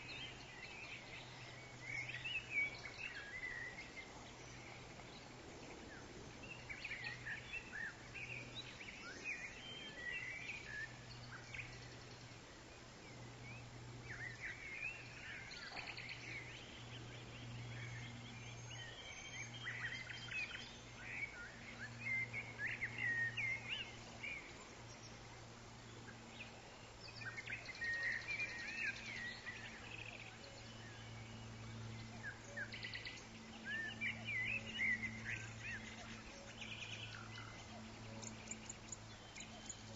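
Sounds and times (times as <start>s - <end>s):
birds chirping and whistling: 0.0s - 5.1s, 13.1s - 25.1s, 26.0s - 39.9s
soft background hiss: 0.0s - 39.9s.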